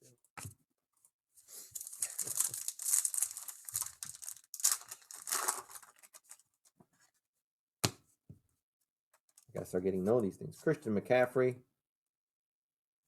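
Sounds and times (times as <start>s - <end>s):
foil wrapper tearing and crinkling: 1.7s - 6.4s.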